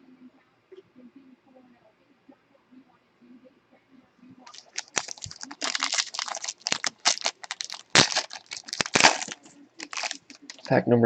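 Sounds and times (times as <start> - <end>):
foil wrapper crinkling and tearing: 4.5 - 10.7.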